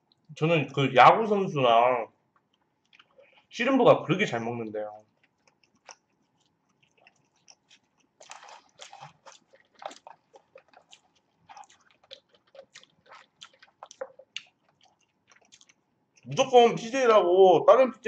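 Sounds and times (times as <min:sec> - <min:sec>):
chewing and biting food: 0:02.3 - 0:03.5, 0:05.0 - 0:16.3.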